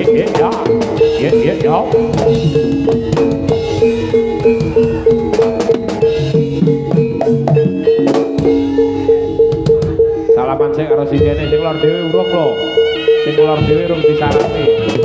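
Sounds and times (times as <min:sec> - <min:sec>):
kendang drum strokes: 0:00.0 - 0:11.8
gamelan music: 0:00.0 - 0:15.0
repeated gong-chime note: 0:00.0 - 0:15.0.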